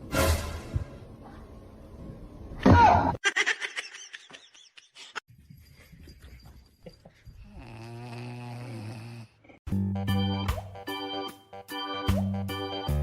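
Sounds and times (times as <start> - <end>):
animal snore-like sound: 7.5 - 9.6.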